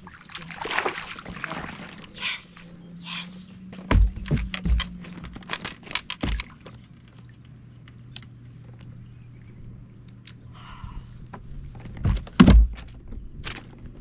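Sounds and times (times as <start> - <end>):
dull knocks: 3.8 - 5.4.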